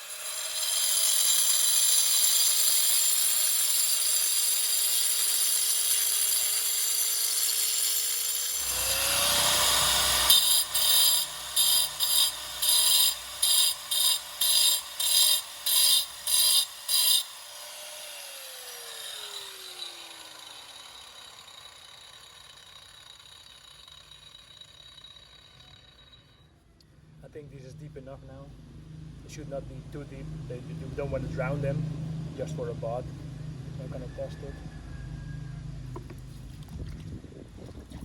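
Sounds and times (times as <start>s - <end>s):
power grinder grinding rock: 0.0s - 26.2s
grinder winding down: 0.0s - 26.4s.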